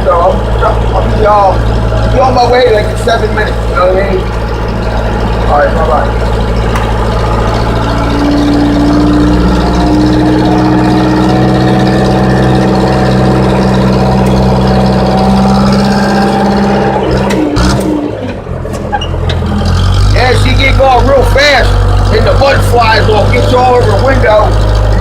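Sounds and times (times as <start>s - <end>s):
diesel engine running under load: 0.0s - 25.0s
clicks: 6.5s - 7.6s.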